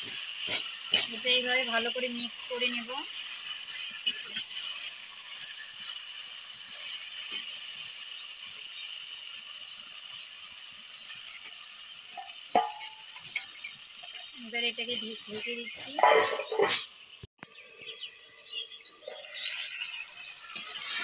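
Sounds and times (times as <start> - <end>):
metal spatula scraping: 0.0 - 7.9, 15.4 - 16.9, 19.0 - 21.0
chicken sizzling in a pot: 0.0 - 21.0.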